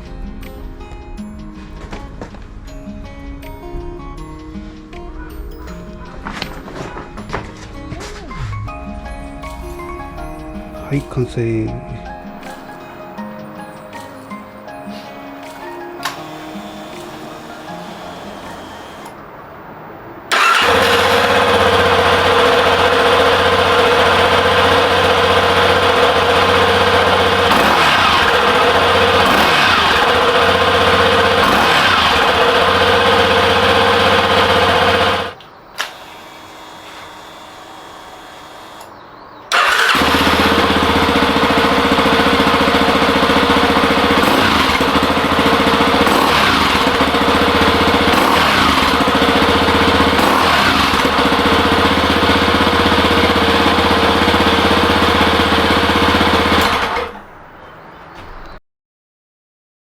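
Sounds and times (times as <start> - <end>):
motorcycle engine running: 16.4 - 19.1, 20.3 - 35.4, 39.5 - 57.2.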